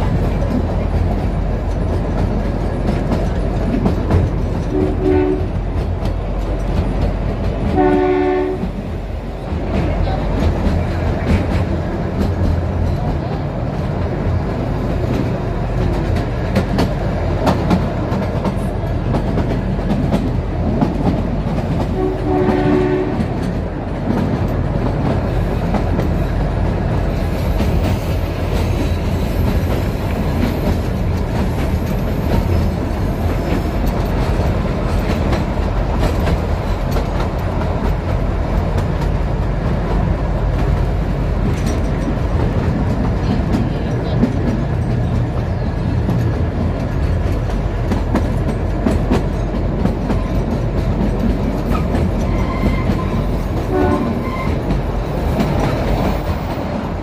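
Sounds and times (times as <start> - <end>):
train rumbling: 0.0 - 57.0
wheels clicking over rail joints: 0.0 - 57.0
train horn: 4.7 - 5.6, 7.7 - 8.8, 21.9 - 23.4, 52.3 - 54.6.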